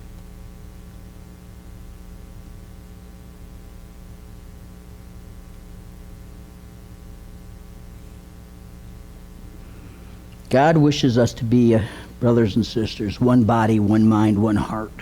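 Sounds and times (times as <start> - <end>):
mains hum: 0.0 - 15.0
faint hiss: 9.2 - 15.0.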